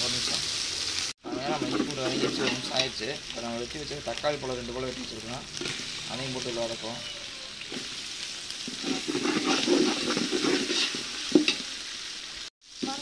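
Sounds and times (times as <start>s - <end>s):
vegetables sizzling in hot oil: 0.0s - 13.0s
metal ladle scraping pot: 1.2s - 2.9s, 8.6s - 11.7s.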